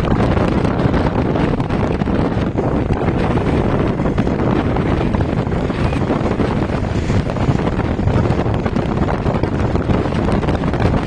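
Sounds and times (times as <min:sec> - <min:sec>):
loud wind buffeting microphone: 0:00.0 - 0:11.0.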